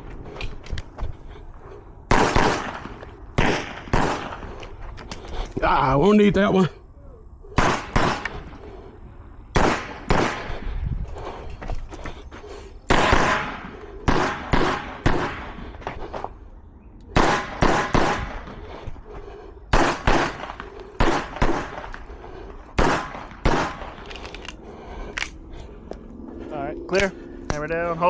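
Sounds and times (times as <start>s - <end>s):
pistol shots: 2.1s - 4.5s, 7.6s - 8.4s, 9.5s - 10.5s, 12.9s - 15.6s, 17.1s - 18.5s, 19.7s - 22.0s, 22.8s - 24.1s.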